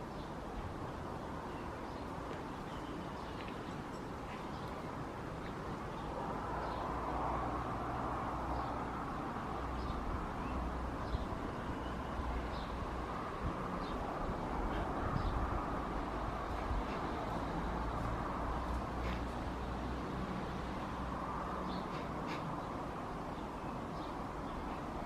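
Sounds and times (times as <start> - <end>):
bird chirping faintly: 0.0 - 19.4
steady rushing noise: 0.0 - 25.0.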